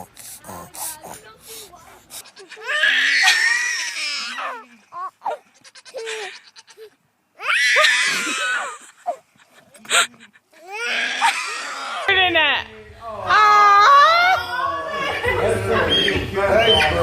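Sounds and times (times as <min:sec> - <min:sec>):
goat bleating: 0:05.3 - 0:06.9.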